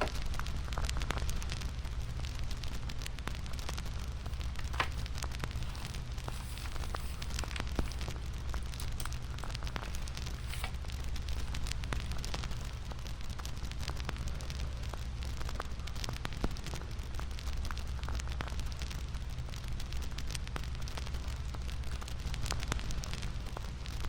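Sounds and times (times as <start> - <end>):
bonfire crackling and popping: 0.0 - 24.0
low rumble of burning: 0.0 - 24.0.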